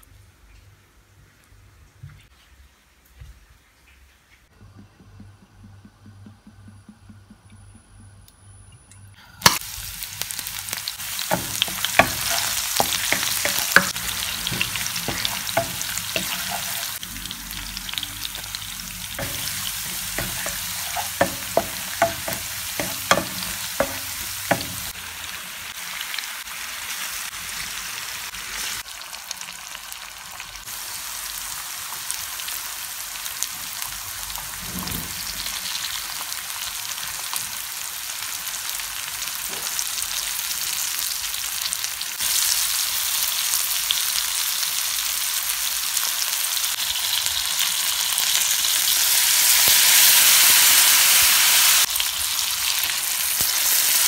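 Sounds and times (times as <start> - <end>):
food sizzling in frying pan: 9.4 - 54.0
spatula scraping a pan: 11.2 - 17.0, 19.1 - 24.9.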